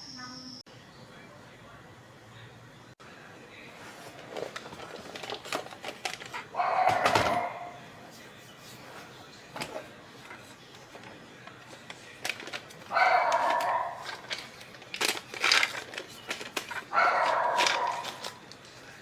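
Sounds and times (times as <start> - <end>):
toy dog electronic barks: 6.5 - 7.7, 12.9 - 14.1, 16.9 - 18.3.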